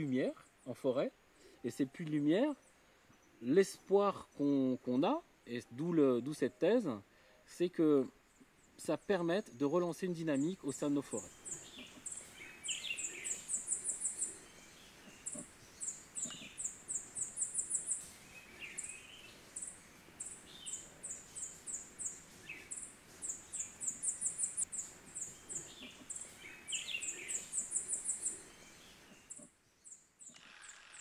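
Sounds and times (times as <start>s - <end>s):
soft low bird chirps: 8.1s - 30.8s.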